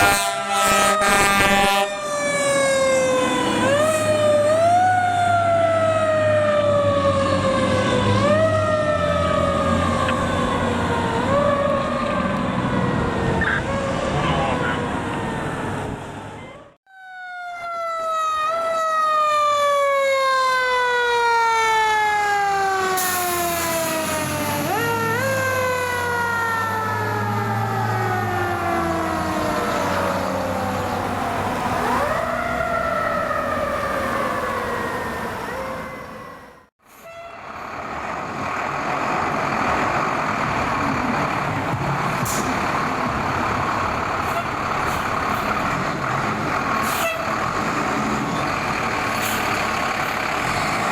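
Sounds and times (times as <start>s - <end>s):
passing traffic noise: 0.0s - 50.9s
mechanical siren winding down: 0.8s - 36.7s.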